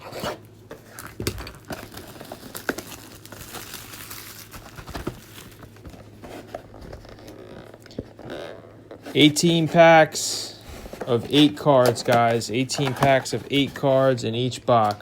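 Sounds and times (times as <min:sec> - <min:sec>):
plastic wrapping crinkling and tearing: 0:00.7 - 0:06.2.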